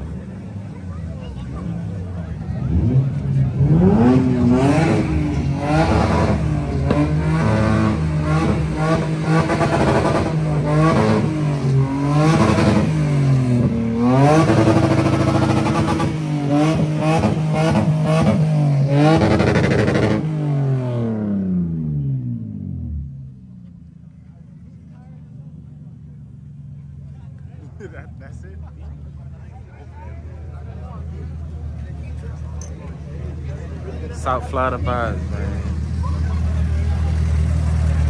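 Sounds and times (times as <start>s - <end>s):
car engine revving on limiter: 2.6s - 23.1s.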